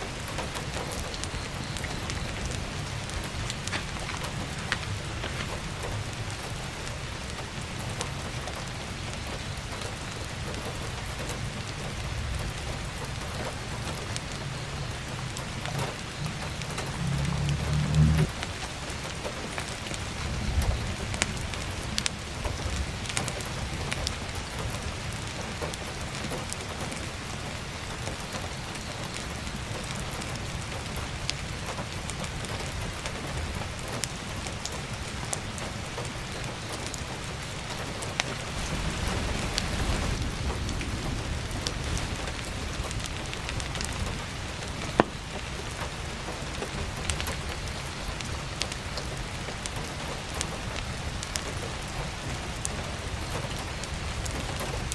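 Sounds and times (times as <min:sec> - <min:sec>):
heavy rain pattering: 0:00.0 - 0:54.9
firewood popping and crackling: 0:00.1 - 0:54.9
low rumble: 0:14.3 - 0:18.4, 0:38.3 - 0:44.3.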